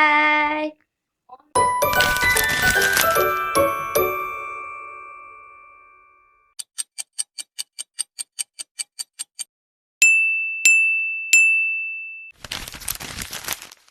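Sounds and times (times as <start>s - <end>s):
crackling noise: 1.4s - 4.4s, 12.4s - 13.9s
bright high dings: 1.6s - 6.5s, 10.0s - 12.3s.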